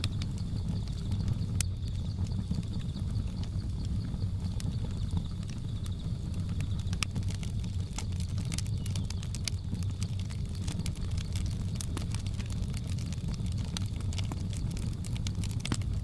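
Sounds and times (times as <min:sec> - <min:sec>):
faint insect drone: 0:00.0 - 0:16.0
wood fire crackling: 0:00.0 - 0:16.0.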